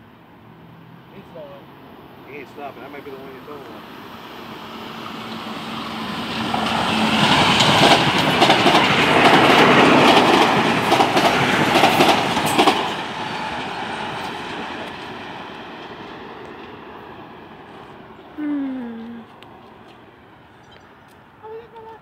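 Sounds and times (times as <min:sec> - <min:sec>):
train wheels clacking over rails: 0:05.2 - 0:15.4.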